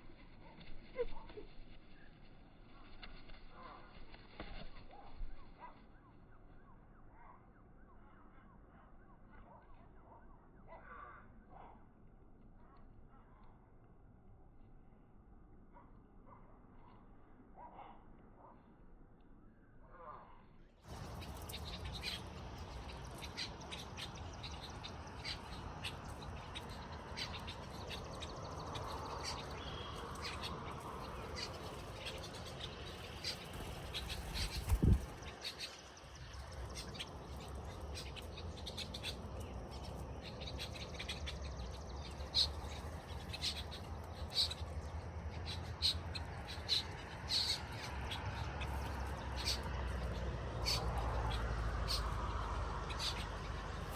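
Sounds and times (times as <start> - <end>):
low rumble of wind: 19.9 - 53.9
small birds chirping: 20.8 - 53.9.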